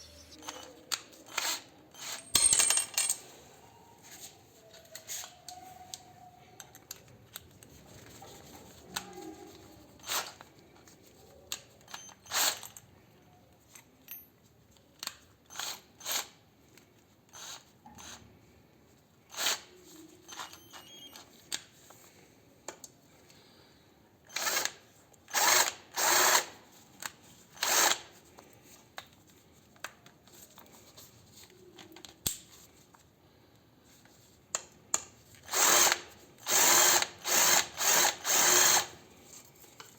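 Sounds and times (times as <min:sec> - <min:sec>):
cordless drill brief spins: 0:35.5 - 0:38.9.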